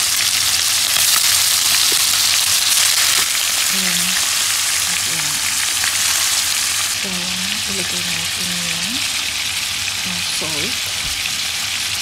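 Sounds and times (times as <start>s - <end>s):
chicken sizzling in a frying pan: 0.0s - 12.0s.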